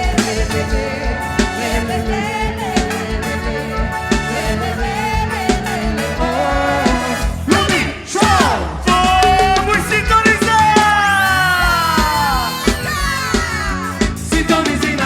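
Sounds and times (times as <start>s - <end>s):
drum beat: 0.0s - 15.0s
winding melody: 11.2s - 14.0s.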